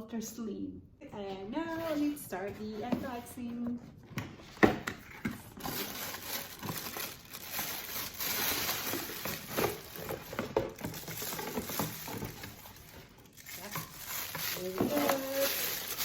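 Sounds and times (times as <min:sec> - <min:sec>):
packaging crinkling and rustling: 0:04.4 - 0:16.0.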